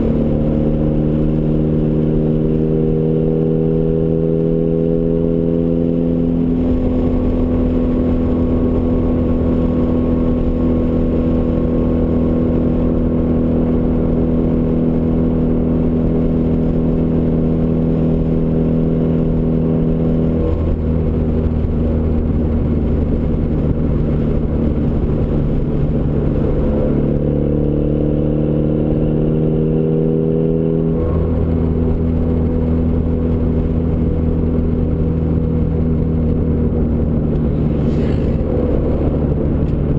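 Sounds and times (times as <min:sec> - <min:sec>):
car exhaust drone: 0:00.0 - 0:39.9.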